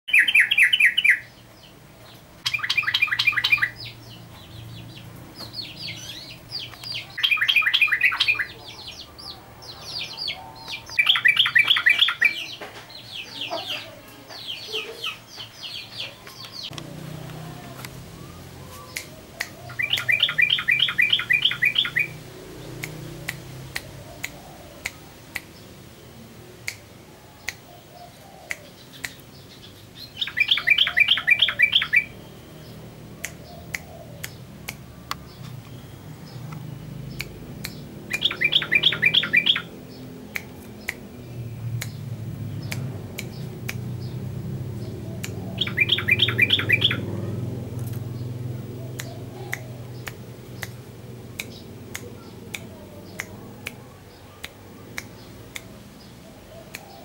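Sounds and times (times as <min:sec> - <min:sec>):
soft bird chirps: 0:00.1 - 0:16.9, 0:17.5 - 0:25.8, 0:27.3 - 0:50.8
bulbul singing rapid notes: 0:17.9 - 0:25.7, 0:28.5 - 0:55.8
sharp clicks: 0:22.8 - 0:25.6, 0:33.2 - 0:39.7, 0:40.3 - 0:44.3, 0:49.0 - 0:53.8, 0:54.4 - 0:55.7.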